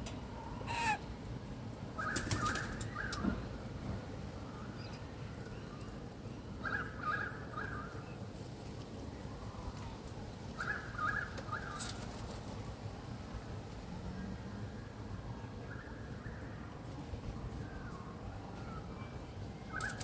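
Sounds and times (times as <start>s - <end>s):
currawong calling: 0.3s - 1.1s.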